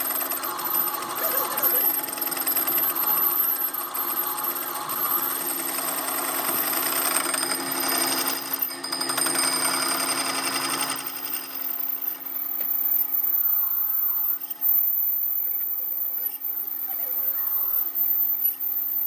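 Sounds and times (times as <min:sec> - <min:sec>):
workshop machinery rattling: 0:00.0 - 0:12.9
constant machine hum: 0:00.0 - 0:19.0.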